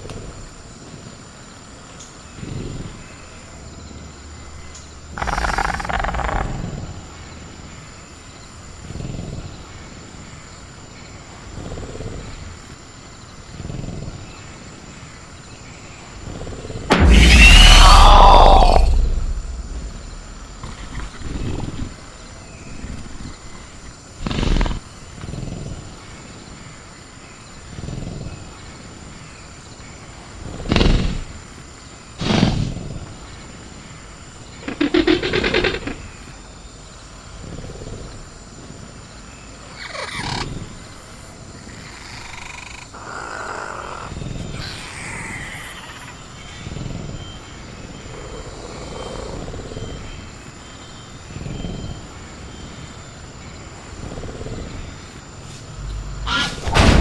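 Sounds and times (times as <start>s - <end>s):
crickets chirring: 0.0s - 57.0s
creature call: 16.9s - 21.3s, 41.9s - 46.2s, 55.8s - 56.9s
creature growling: 16.9s - 21.7s.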